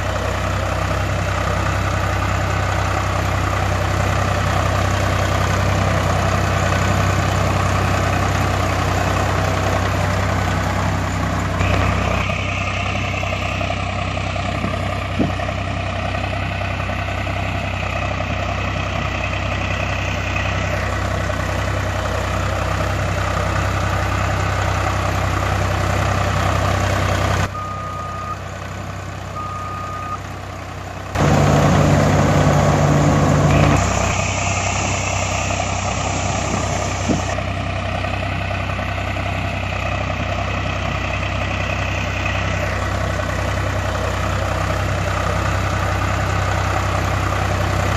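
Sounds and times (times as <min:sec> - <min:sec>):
heavy vehicle engines running: 0:00.0 - 0:47.9
low engine hum: 0:00.0 - 0:47.9
short beeps: 0:27.6 - 0:28.4, 0:29.4 - 0:30.2.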